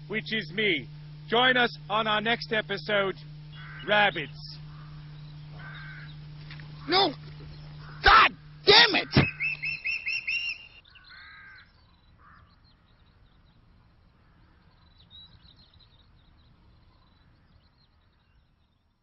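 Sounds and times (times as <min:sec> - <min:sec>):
birds chirping: 0:00.0 - 0:19.0
faint bird twittering: 0:00.0 - 0:19.0
harsh bird call: 0:01.5 - 0:12.5.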